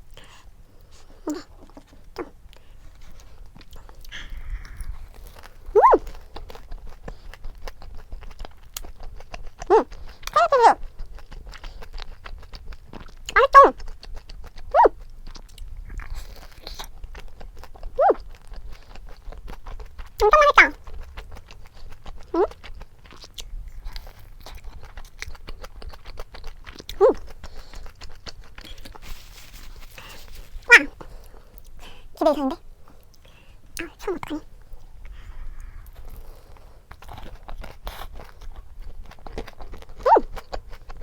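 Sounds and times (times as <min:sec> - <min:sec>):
close-up chewing: 0:00.0 - 0:41.0
pet animal crying: 0:05.8 - 0:06.1, 0:10.4 - 0:10.8, 0:18.0 - 0:18.2, 0:20.2 - 0:20.8, 0:30.0 - 0:31.0, 0:40.0 - 0:40.2
cat meowing: 0:30.7 - 0:30.9.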